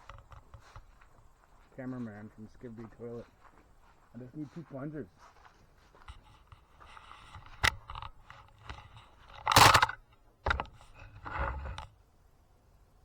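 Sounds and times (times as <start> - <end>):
sharp clicks: 7.3 - 10.8.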